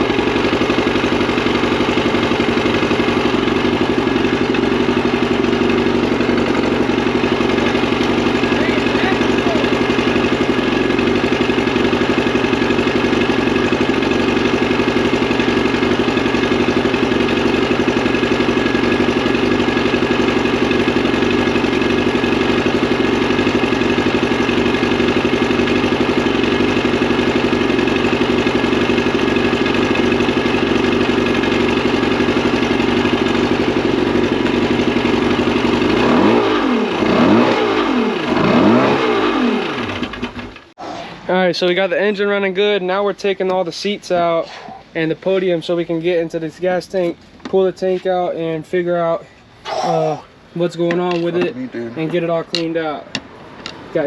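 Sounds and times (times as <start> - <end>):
outboard engine running and revving: 0.0 - 40.8.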